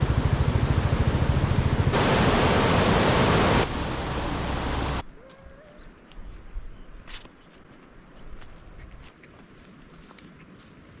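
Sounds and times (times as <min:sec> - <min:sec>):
rushing water: 0:00.0 - 0:05.0.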